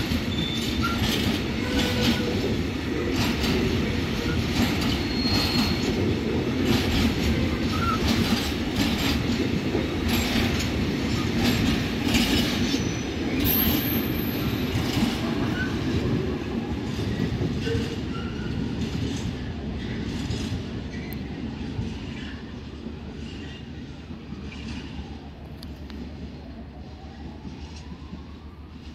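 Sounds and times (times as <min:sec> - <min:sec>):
freight train rumbling: 0:00.0 - 0:28.9
wheel squeals: 0:00.1 - 0:02.4, 0:04.2 - 0:06.0, 0:07.6 - 0:08.3, 0:17.6 - 0:18.6.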